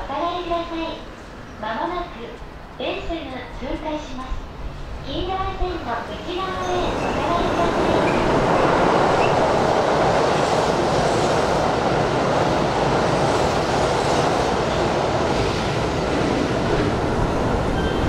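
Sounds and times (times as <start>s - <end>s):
train wheels running on rails: 2.2s - 18.0s.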